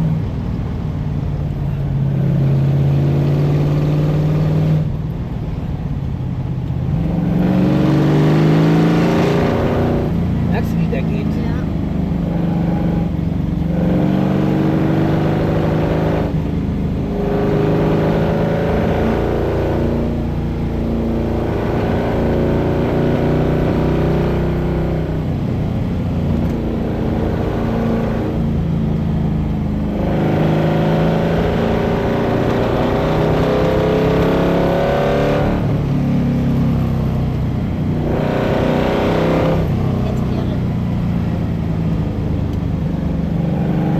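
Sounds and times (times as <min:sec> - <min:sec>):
car engine accelerating hard: 0:00.0 - 0:43.9.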